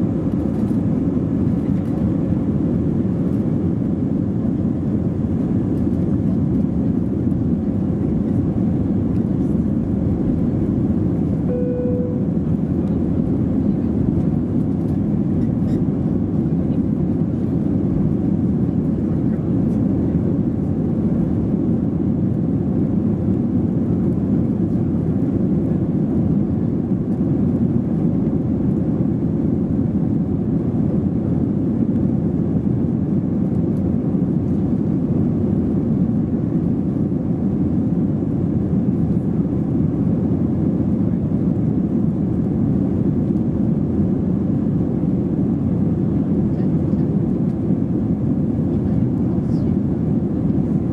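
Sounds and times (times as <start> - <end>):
airliner cabin rumble: 0.0 - 50.9.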